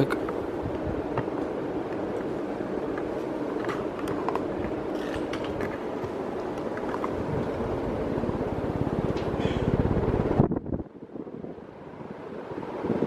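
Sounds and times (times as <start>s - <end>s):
faint fan clicks: 0.0s - 10.4s
ceiling fan running: 0.0s - 13.0s.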